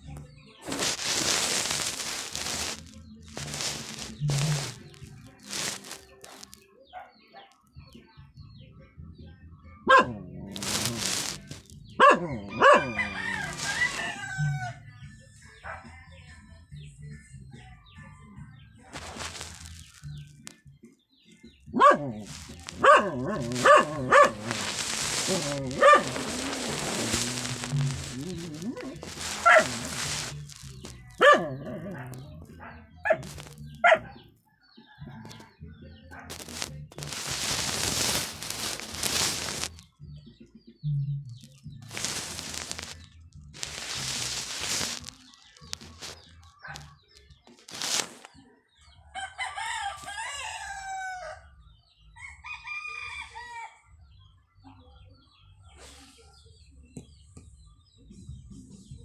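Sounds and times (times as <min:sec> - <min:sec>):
dog barking: 0:09.9 - 0:11.4, 0:12.0 - 0:13.7, 0:21.8 - 0:27.2, 0:29.2 - 0:30.3, 0:31.2 - 0:32.2, 0:33.1 - 0:34.1
chicken crowing: 0:12.0 - 0:14.8, 0:49.4 - 0:51.4.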